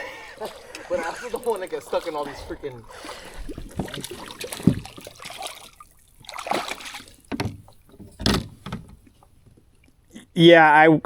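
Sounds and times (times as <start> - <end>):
kayak knocking on water: 3.0 - 5.6, 6.2 - 9.7.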